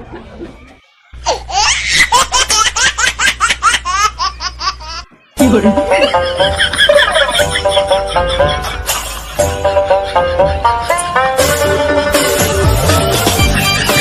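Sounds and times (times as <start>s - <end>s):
high-pitched laugh: 0.0s - 5.1s, 5.9s - 12.4s
background music: 5.4s - 14.0s.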